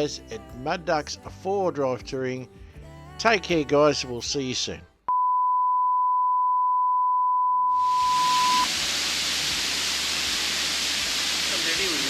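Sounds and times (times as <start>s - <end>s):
high-pitched beep tone: 5.1s - 8.7s
waterfall rushing: 8.4s - 12.0s.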